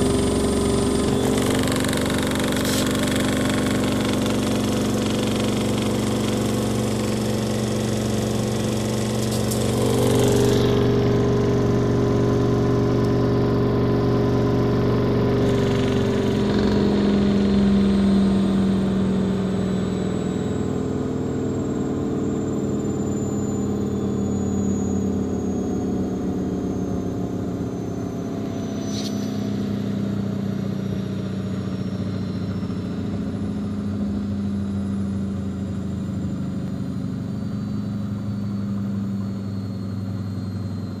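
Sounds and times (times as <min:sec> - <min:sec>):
washing machine spinning: 0:00.0 - 0:15.7.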